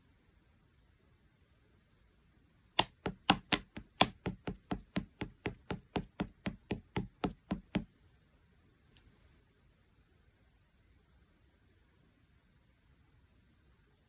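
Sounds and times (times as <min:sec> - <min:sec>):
slime popping clicks: 0:02.8 - 0:07.8.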